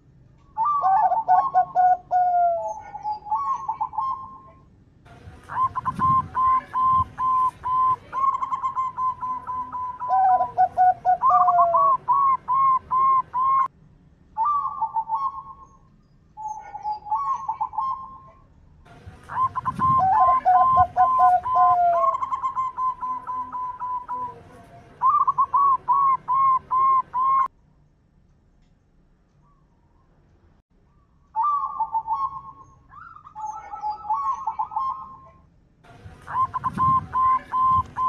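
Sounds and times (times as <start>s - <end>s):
dove cooing: 0.6s - 4.6s, 5.5s - 13.7s, 14.4s - 15.8s, 16.4s - 18.4s, 19.0s - 27.5s, 31.4s - 35.4s, 36.1s - 38.0s.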